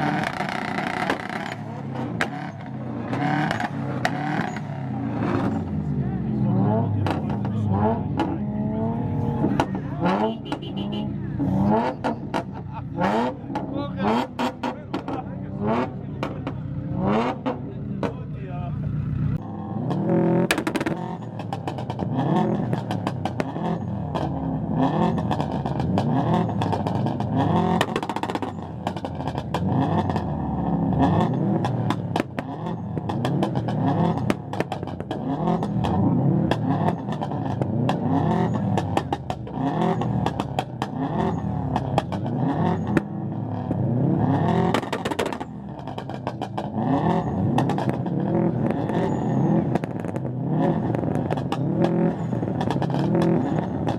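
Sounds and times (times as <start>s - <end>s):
car engine revving: 0.0s - 53.9s
exhaust cracks and pops: 20.5s - 24.3s, 25.2s - 30.3s, 31.6s - 43.2s, 44.6s - 46.8s, 47.5s - 53.9s.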